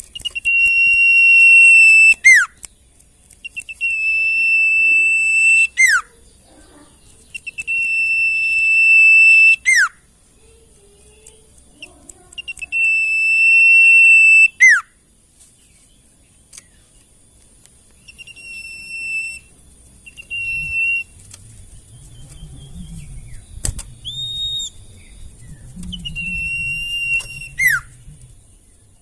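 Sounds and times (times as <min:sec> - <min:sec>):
songbird whistling: 0:00.0 - 0:02.7, 0:03.4 - 0:06.3, 0:07.2 - 0:10.0, 0:11.0 - 0:15.0, 0:17.9 - 0:29.0.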